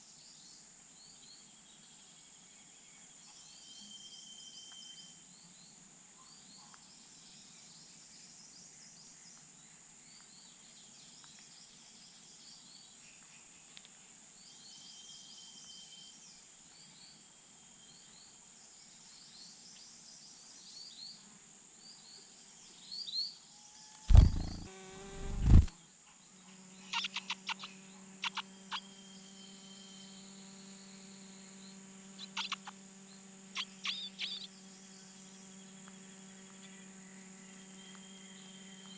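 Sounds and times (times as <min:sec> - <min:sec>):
high insect-like whine: 0:23.8 - 0:25.8, 0:26.7 - 0:38.9
loud low rumbling bumps: 0:24.1 - 0:25.7
steady low hum: 0:24.1 - 0:25.7.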